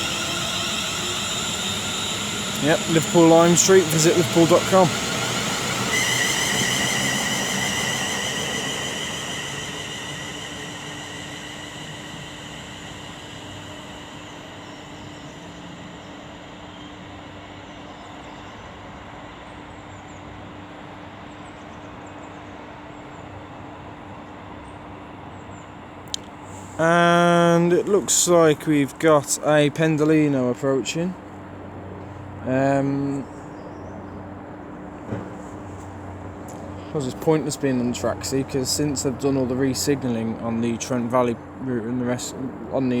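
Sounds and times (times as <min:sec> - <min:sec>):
high whine: 0:00.0 - 0:17.2, 0:26.1 - 0:43.0
railway ambience with low hum: 0:00.0 - 0:43.0
train running: 0:00.0 - 0:43.0.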